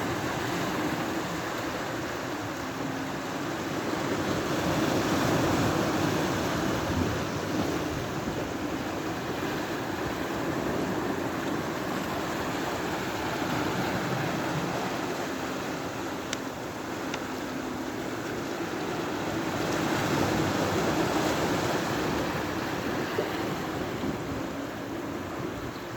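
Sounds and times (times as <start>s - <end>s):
sea waves washing ashore: 0.0s - 25.9s.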